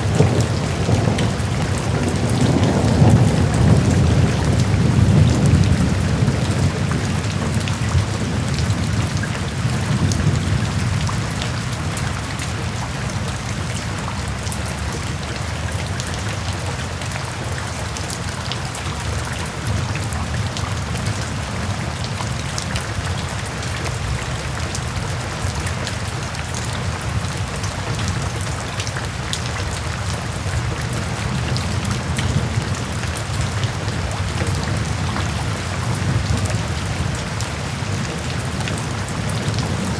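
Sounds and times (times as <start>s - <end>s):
distant thunder rumble: 0.0s - 14.4s
steady rain with dripping drops: 0.0s - 39.9s.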